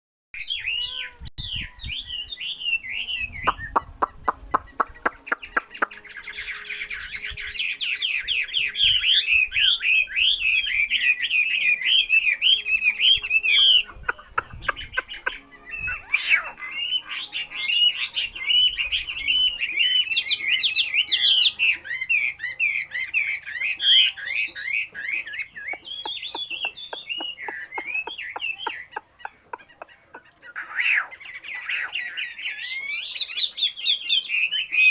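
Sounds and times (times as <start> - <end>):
songbird chirping and warbling: 0.4 - 34.9.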